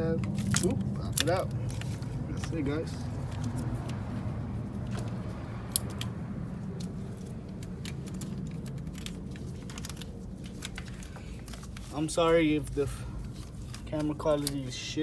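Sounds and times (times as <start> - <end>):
low hum: 0.0 - 11.9
clicks of car parts handled: 0.2 - 12.1, 13.2 - 14.7.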